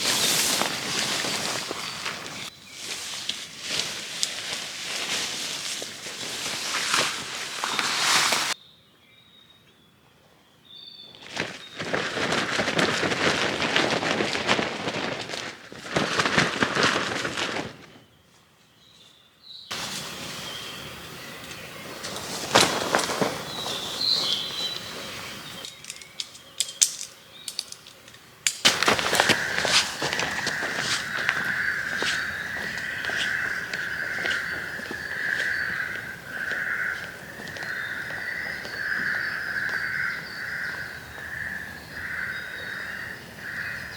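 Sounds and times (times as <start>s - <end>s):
rustling and crunching: 0.0s - 8.6s, 11.2s - 18.1s, 21.6s - 40.7s
small birds chirping: 0.0s - 8.6s, 17.6s - 43.9s.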